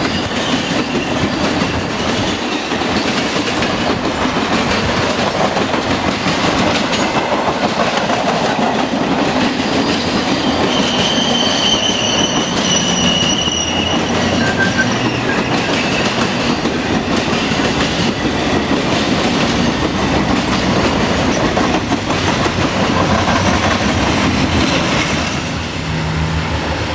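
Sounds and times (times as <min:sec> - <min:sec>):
train wheels rumbling on rails: 0:00.0 - 0:26.9
high wheel squeal: 0:09.8 - 0:16.6.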